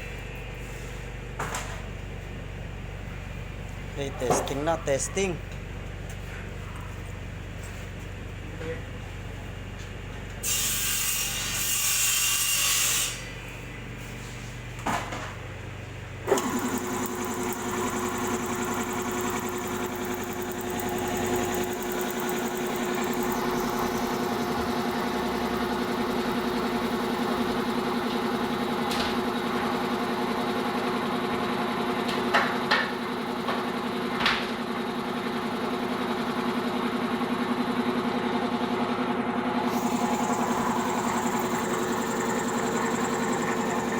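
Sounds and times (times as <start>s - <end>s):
electric motor humming: 16.3s - 29.6s, 39.7s - 43.9s.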